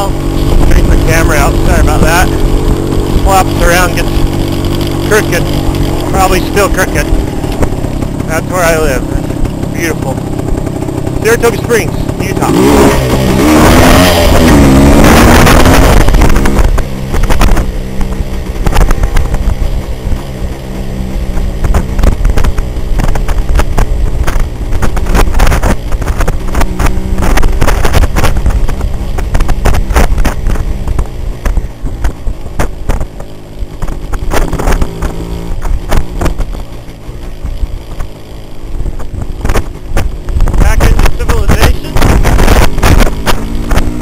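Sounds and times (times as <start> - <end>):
motorcycle two-stroke engine running: 0.0 - 44.0
knocks and rattles: 21.4 - 36.6.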